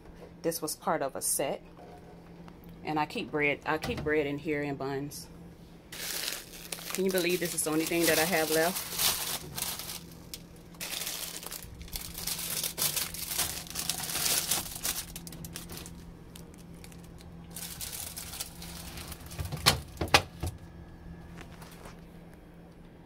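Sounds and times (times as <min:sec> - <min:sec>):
plastic packaging crinkling: 0:05.9 - 0:20.1.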